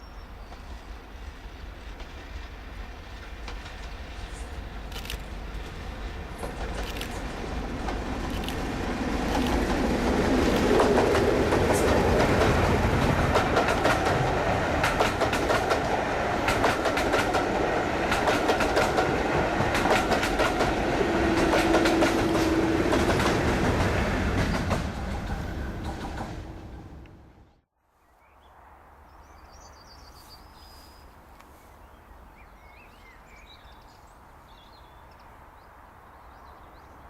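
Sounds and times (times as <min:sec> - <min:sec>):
train wheels clickety-clack: 0:00.5 - 0:27.2.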